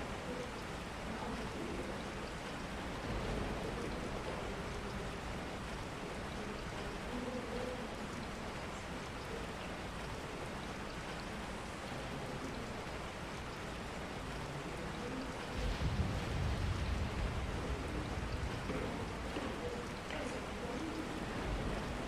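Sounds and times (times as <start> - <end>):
steady rain falling: 0.0 - 22.0
low rumble: 15.6 - 19.3.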